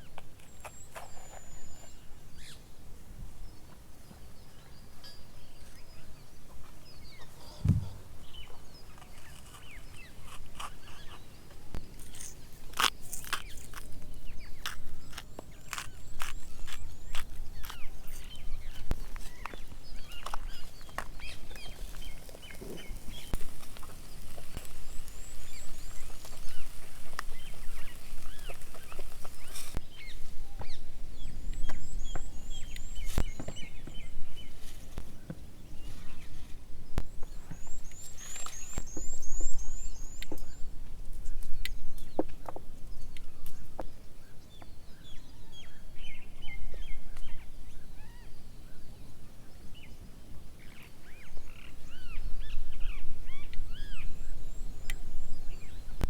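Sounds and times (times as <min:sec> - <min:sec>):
songbirds singing and calling: 0:00.0 - 0:56.0.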